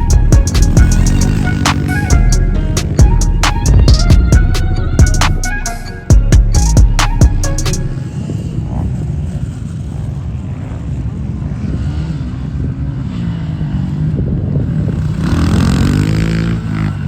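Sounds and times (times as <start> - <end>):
dirt bike engines revving: 0.0 - 4.6, 8.0 - 17.0.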